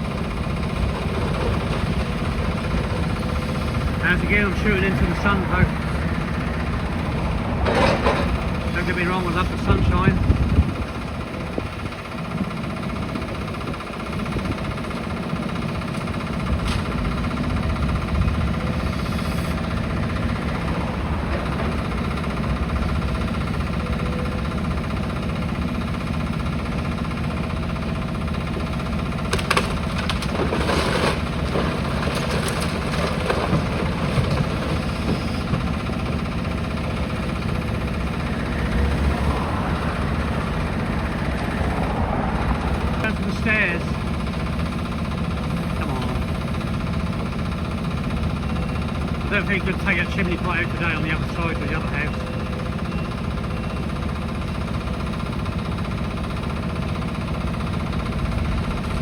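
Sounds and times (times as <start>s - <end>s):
excavator diesel engine running: 0.0s - 59.0s
breaking rubble clattering: 28.7s - 38.1s.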